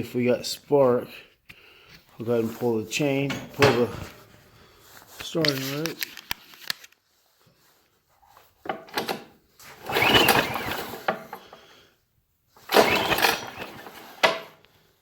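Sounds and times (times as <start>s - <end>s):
recoil starter rope pull: 8.7s - 11.6s, 12.6s - 14.7s
engine spinning over: 9.8s - 11.1s, 12.7s - 14.1s.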